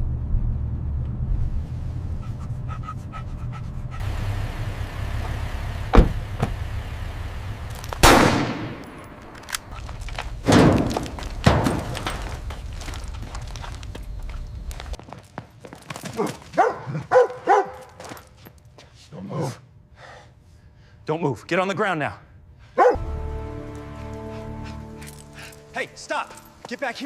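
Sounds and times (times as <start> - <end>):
low steady rumble: 0.0 - 15.0
gunshots with echo: 8.0 - 9.3.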